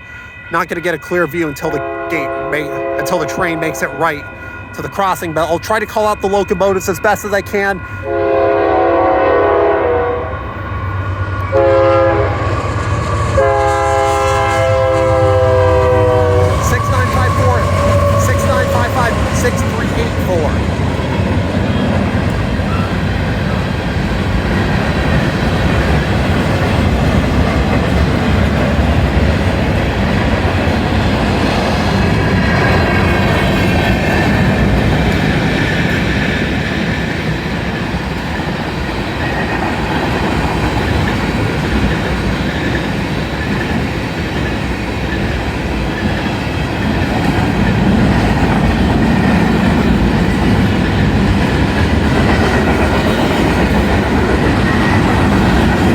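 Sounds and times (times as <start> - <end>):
freight train wheels rumbling: 0.0 - 55.9
clickety-clack over rail joints: 16.0 - 55.9.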